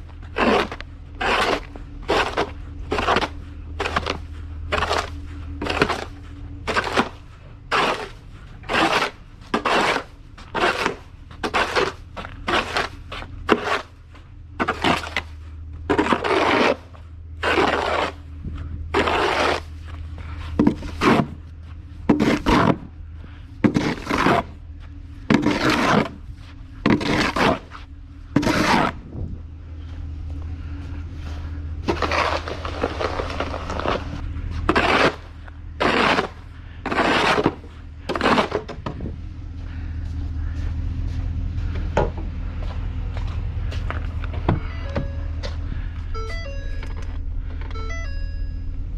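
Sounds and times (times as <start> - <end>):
snow shovel scraping pavement: 0.0 - 22.9, 23.6 - 29.1, 31.2 - 38.9
steady low hum: 0.0 - 48.9.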